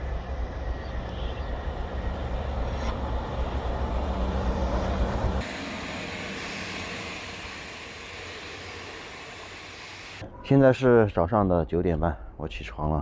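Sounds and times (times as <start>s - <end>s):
train deep rumble: 0.0s - 10.2s.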